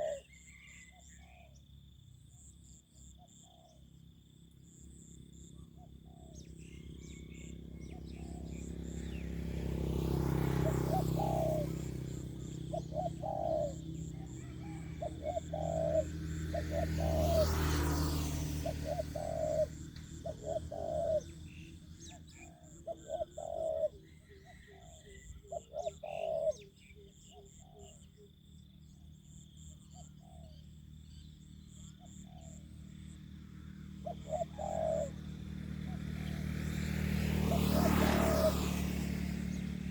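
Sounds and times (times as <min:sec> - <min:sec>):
doves cooing: 0:00.0 - 0:01.5, 0:06.0 - 0:26.7, 0:33.8 - 0:39.9.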